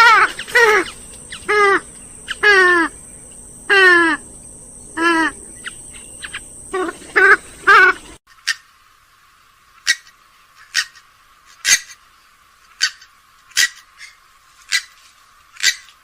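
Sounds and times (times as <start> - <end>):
swamphen short sharp calls: 0.0 - 4.3, 4.9 - 8.7.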